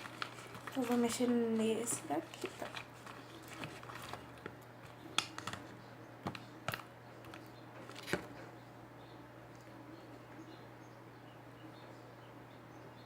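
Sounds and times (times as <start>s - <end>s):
spoon stirring sticky slime: 0.0s - 5.7s.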